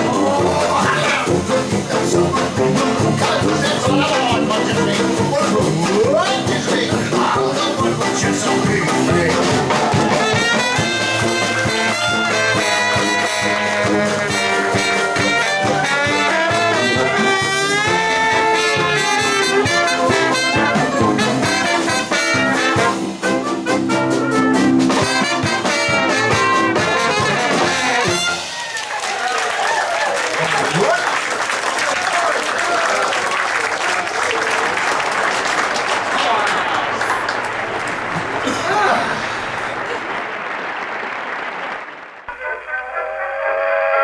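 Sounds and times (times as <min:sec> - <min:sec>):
trombone: 0:00.0 - 0:28.6
trumpet: 0:00.0 - 0:28.8
jazz band playing: 0:00.0 - 0:28.9.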